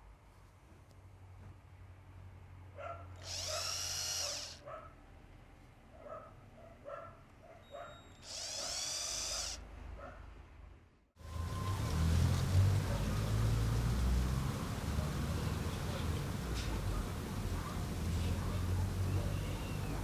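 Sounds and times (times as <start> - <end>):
small electric drill spinning: 3.2 - 4.6, 8.2 - 9.6.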